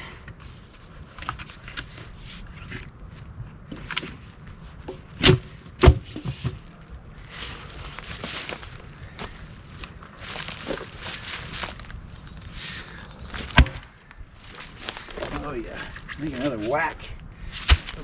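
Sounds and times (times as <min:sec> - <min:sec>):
rustling: 0:06.0 - 0:18.0
shuffling footsteps: 0:06.2 - 0:13.6, 0:14.3 - 0:18.0
axe striking log: 0:17.6 - 0:18.0.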